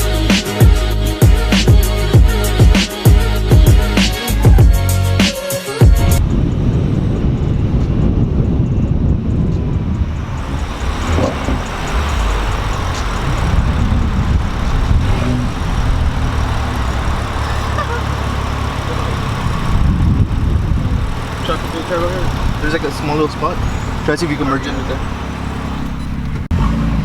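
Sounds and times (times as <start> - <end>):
road and traffic noise: 0.0 - 27.0
car engine running: 5.8 - 27.0.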